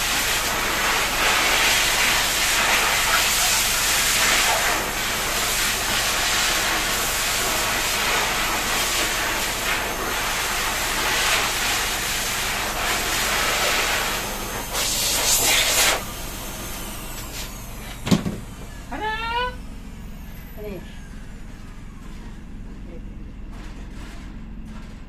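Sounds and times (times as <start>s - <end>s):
water spraying: 0.0s - 19.2s.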